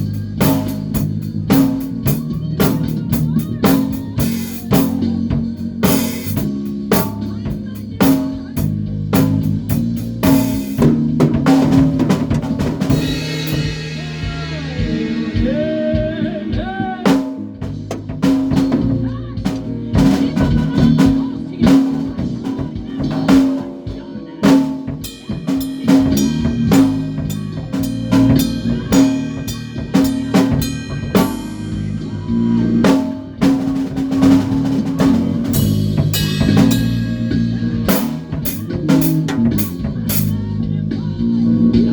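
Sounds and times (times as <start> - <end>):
bass guitar: 0.0 - 41.9
drum kit beating: 0.0 - 41.9
guitar bending notes: 9.1 - 41.6.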